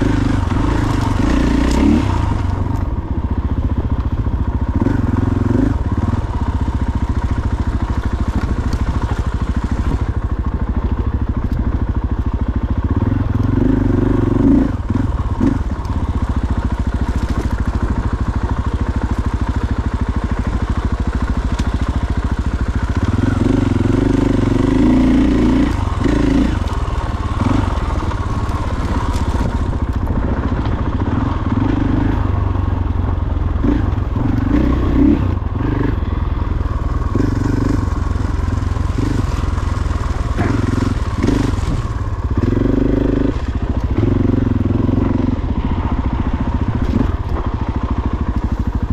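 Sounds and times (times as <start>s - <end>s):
dirt bike engine revving: 0.0s - 3.2s, 4.6s - 10.3s, 12.8s - 48.9s.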